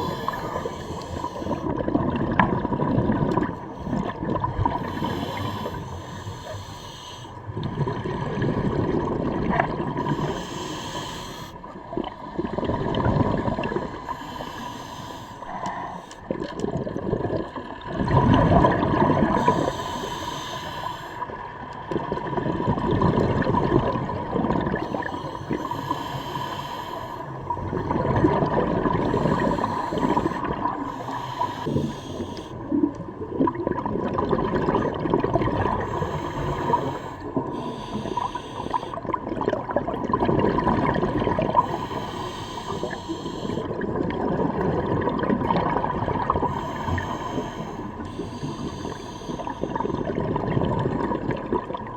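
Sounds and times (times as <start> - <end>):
hissing regulator inhalations: 0.0 - 1.7, 4.7 - 7.5, 10.0 - 11.7, 13.7 - 16.4, 19.3 - 21.4, 24.8 - 27.6, 29.0 - 32.8, 35.8 - 39.1, 41.6 - 43.8, 46.4 - 50.1
bubbling exhalations: 0.0 - 5.8, 11.8 - 14.4, 15.7 - 20.1, 27.4 - 32.0, 32.6 - 47.7, 48.3 - 51.9.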